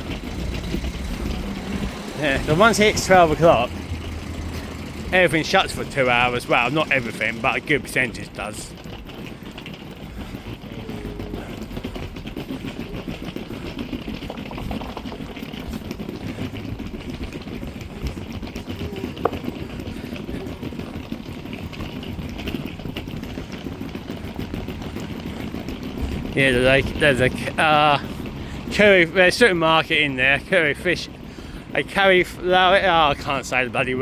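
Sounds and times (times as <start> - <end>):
street traffic noise: 0.0 - 34.0.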